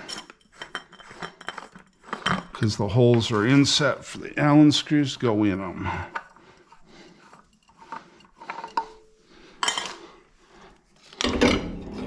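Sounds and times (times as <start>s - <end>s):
metal tools clinking: 0.0s - 4.2s, 4.8s - 10.2s.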